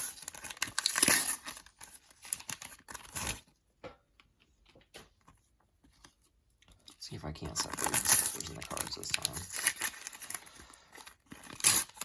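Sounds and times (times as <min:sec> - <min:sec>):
sticker packets tearing open: 0:00.0 - 0:03.4, 0:07.4 - 0:12.0
wrappers crinkling: 0:00.0 - 0:03.4, 0:07.0 - 0:12.0.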